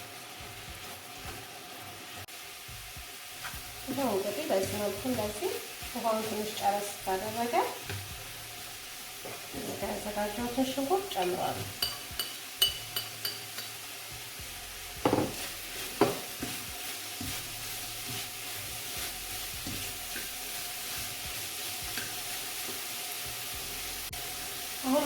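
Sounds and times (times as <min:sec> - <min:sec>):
chicken and onion sizzling in pot: 0:00.0 - 0:25.0
utensil knocking on pot: 0:15.0 - 0:15.4, 0:16.0 - 0:16.5.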